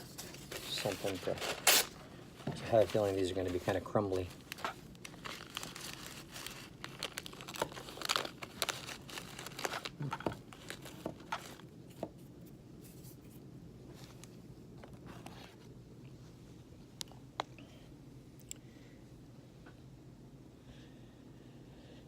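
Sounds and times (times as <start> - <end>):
wrapper crinkling and tearing: 0.0 - 2.0, 2.6 - 11.7.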